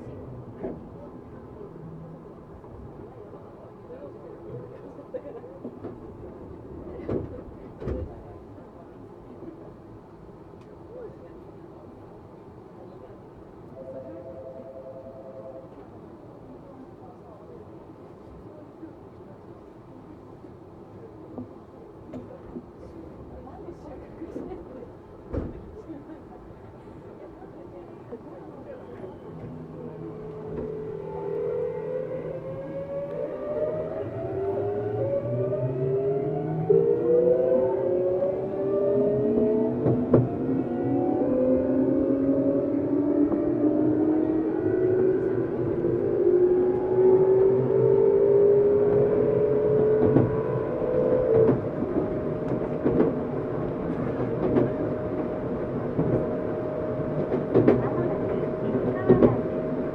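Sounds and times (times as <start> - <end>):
train running rumble: 28.2 - 36.6, 49.8 - 59.9.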